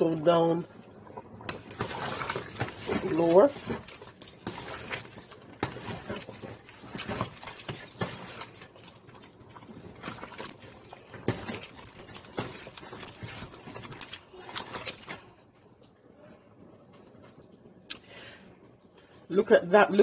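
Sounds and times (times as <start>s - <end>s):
spoon stirring soup in a pot: 0.6s - 15.9s.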